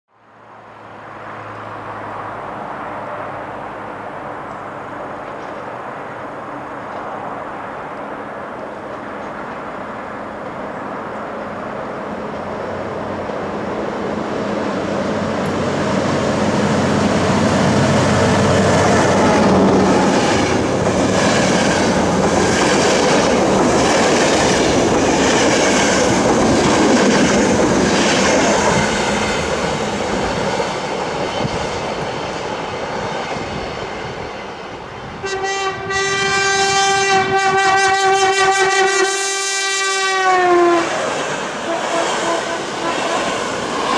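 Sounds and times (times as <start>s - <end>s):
train wheels rumbling on rail: 1.1s - 43.9s
wheels clacking over rail joints: 15.4s - 33.4s
train horn blast: 35.2s - 41.0s, 41.6s - 43.4s.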